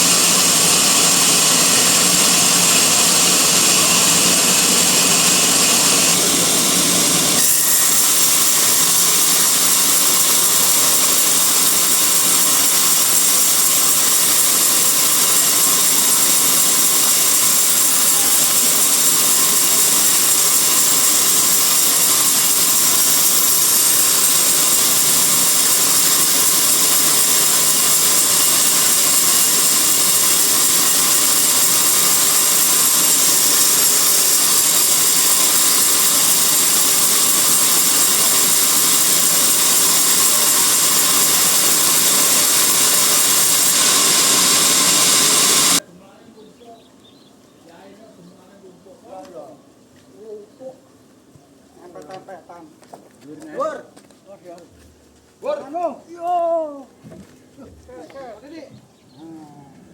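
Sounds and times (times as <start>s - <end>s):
bandsaw cutting a log: 0.0s - 45.8s.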